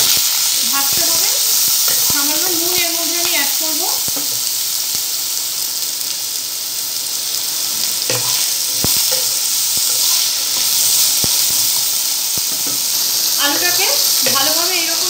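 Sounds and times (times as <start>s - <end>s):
potatoes sizzling in oil: 0.0s - 15.0s.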